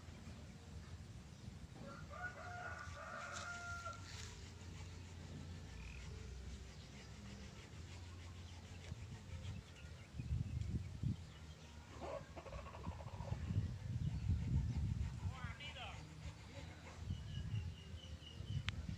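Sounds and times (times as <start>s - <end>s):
rooster crowing: 1.8s - 4.2s.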